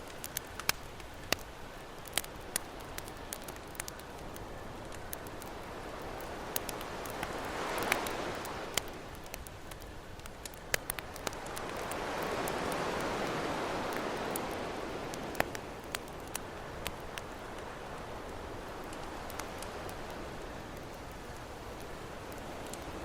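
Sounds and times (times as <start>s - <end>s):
campfire crackling and popping: 0.0s - 23.0s
ocean waves washing in: 5.4s - 9.3s, 10.9s - 16.8s.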